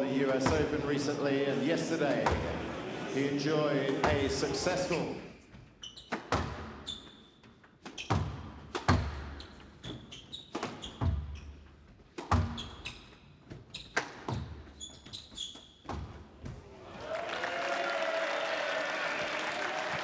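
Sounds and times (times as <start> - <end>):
squash ball hitting rackets and walls: 2.2 - 2.7, 3.9 - 4.4, 5.9 - 16.6
shoes squeaking on court floor: 3.8 - 16.7.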